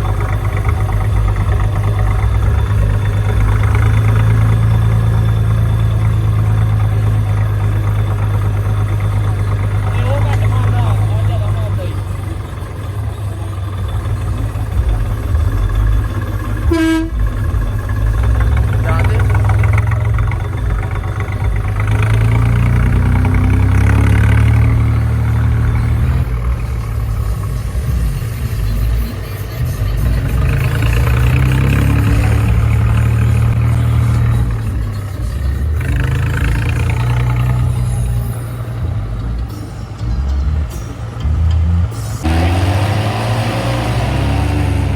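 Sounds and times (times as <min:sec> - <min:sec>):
tractor engine running: 0:00.0 - 0:44.9
short horn beep: 0:16.6 - 0:17.4.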